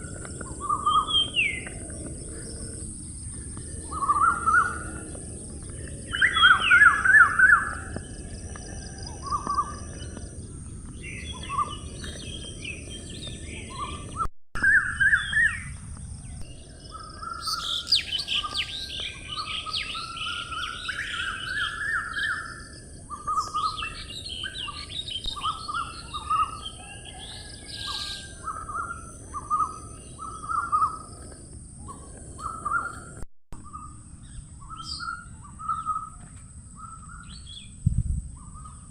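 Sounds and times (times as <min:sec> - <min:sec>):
birds chirping and calling: 0:00.0 - 0:37.8, 0:38.4 - 0:38.9
high bird twittering: 0:03.9 - 0:08.0, 0:16.8 - 0:36.2.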